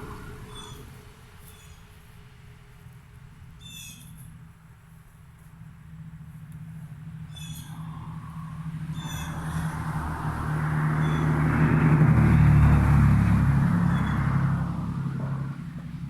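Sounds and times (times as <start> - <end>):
motor vehicle passing by: 0.0 - 1.8, 6.0 - 16.0
faint high bird chirps: 3.6 - 4.2, 7.3 - 8.1, 8.9 - 9.7.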